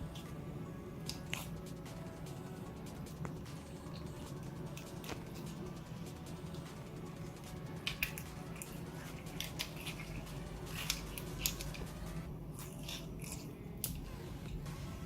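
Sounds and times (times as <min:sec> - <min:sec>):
steady low hum: 0:00.0 - 0:15.0
sticky clicks and small pops: 0:06.5 - 0:12.0.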